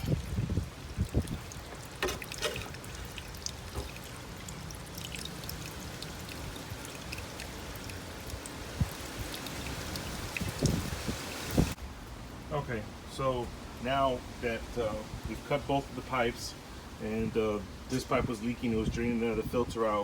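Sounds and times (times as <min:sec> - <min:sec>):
water pouring from a pipe: 0:00.0 - 0:11.8.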